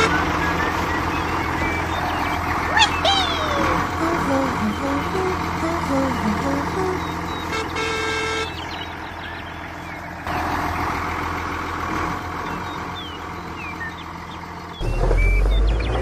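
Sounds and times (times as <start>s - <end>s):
birds chirping: 0.0s - 16.0s
deep engine rumble: 0.0s - 16.0s
vehicle engine running: 0.0s - 16.0s
vehicle horn toot: 2.8s - 8.6s.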